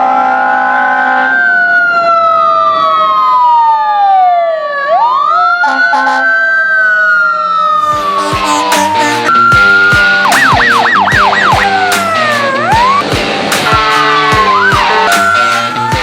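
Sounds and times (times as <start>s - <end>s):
air horn chord: 0.0s - 1.6s, 8.0s - 12.4s, 13.0s - 16.0s
loud horn burst: 0.0s - 1.6s, 8.0s - 9.4s, 13.4s - 16.0s
fire truck siren wailing: 0.0s - 16.0s
horn blips: 7.9s - 16.0s.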